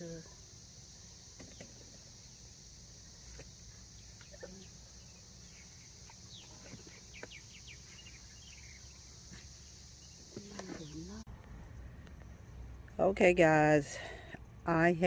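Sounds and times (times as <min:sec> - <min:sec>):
insect chorus: 0:00.0 - 0:15.0
bird chirps: 0:03.8 - 0:11.2.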